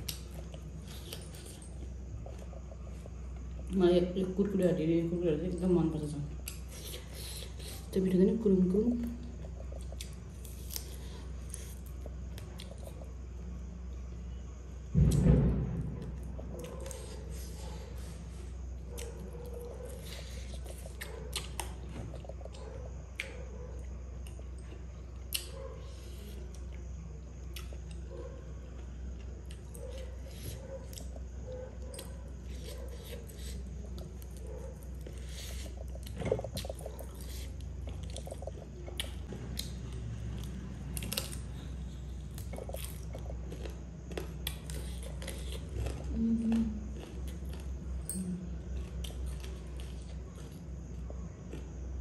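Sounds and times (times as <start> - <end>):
chewing fried chicken: 9.0 - 13.2, 16.6 - 52.0.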